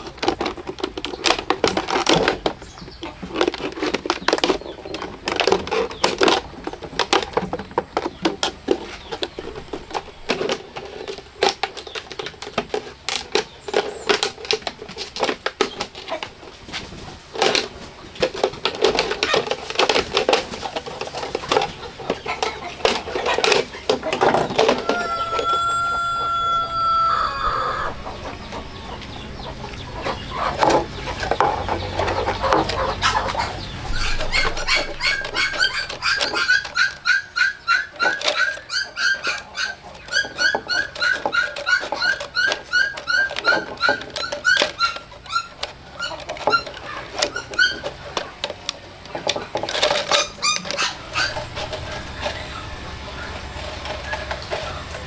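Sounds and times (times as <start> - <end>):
animal calling: 24.6 - 47.9, 50.1 - 55.0
short rising animal calls: 24.8 - 28.2
knocks and clatter: 27.9 - 37.1, 40.4 - 55.0.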